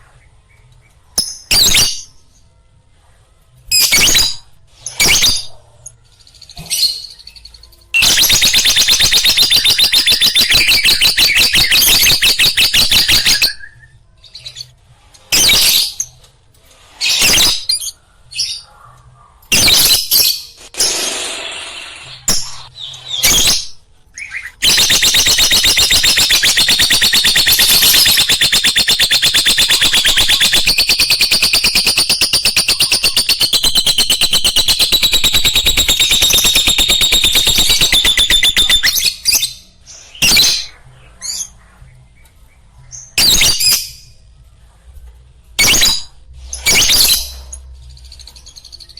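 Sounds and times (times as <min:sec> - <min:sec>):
lovebird chattering: 0:24.6 - 0:39.0.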